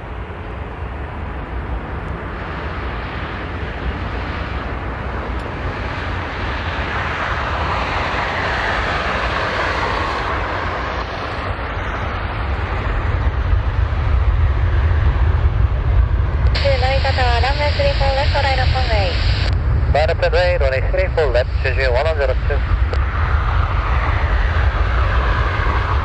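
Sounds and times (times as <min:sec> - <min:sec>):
jet engines roaring: 0:00.0 - 0:26.0
deep rumble: 0:08.8 - 0:26.0.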